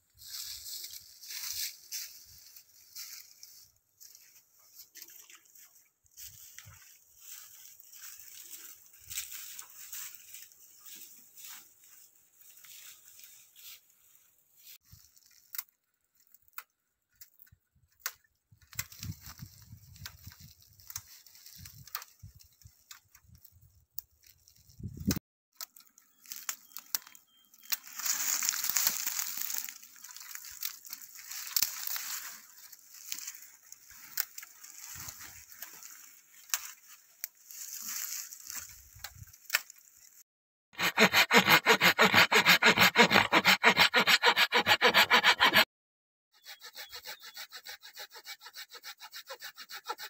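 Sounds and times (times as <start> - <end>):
dry wood and brush crackling: 0.1 - 40.2, 40.8 - 45.6
hand saw cutting wood: 40.8 - 45.7, 46.4 - 50.0.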